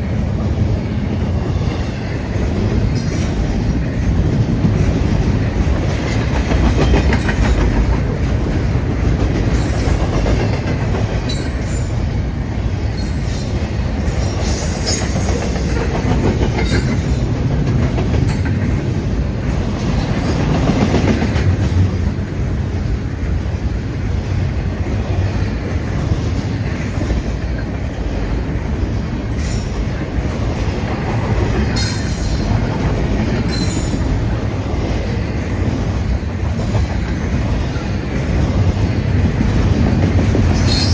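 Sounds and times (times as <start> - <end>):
train wheels rumbling on rail: 0.0 - 40.9
wheels clacking over rail joints: 1.5 - 40.9
high-pitched wheel squeals: 40.6 - 40.9.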